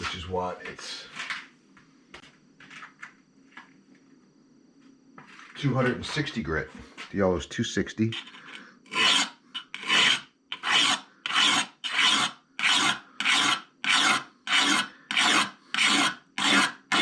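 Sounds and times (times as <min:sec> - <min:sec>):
hone rasping along blade edge: 0:08.1 - 0:17.0.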